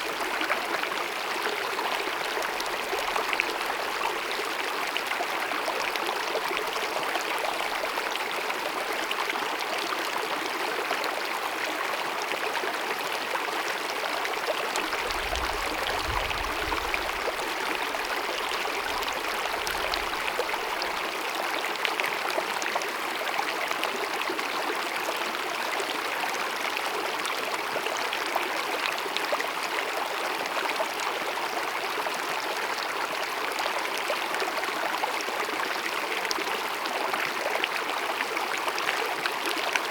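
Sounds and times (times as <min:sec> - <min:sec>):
stream babbling: 0:00.0 - 0:10.4, 0:13.5 - 0:23.1.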